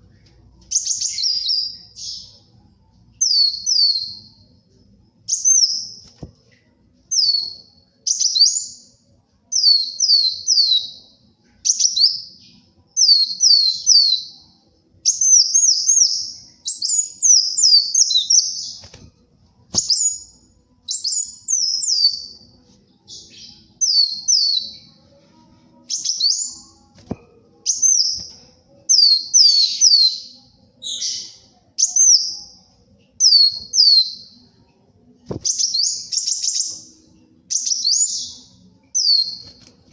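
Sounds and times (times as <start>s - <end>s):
sunbird singing: 7.1s - 18.9s, 27.6s - 34.6s.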